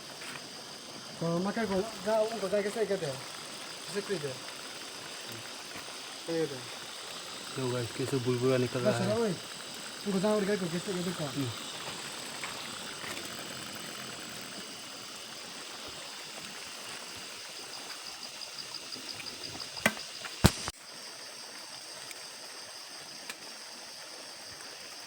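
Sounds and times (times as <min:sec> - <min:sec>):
stream trickling and bubbling: 0:00.0 - 0:25.0.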